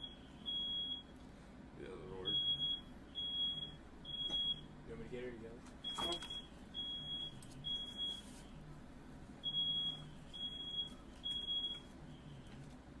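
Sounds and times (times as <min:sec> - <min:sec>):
smoke alarm beeping: 0:00.0 - 0:01.1, 0:02.3 - 0:04.7, 0:05.8 - 0:08.5, 0:09.4 - 0:12.5.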